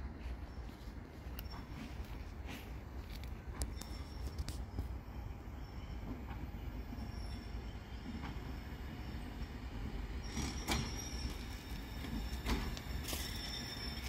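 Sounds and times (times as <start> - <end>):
train low rumble: 0.0 - 14.0
high wheel squeal: 6.8 - 14.0.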